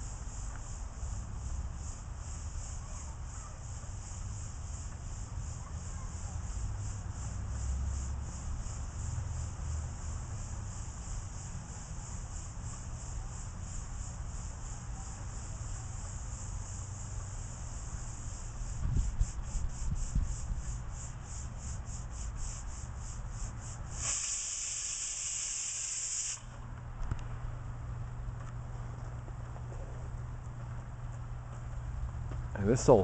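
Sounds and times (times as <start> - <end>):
vent hissing: 6.5 - 26.6.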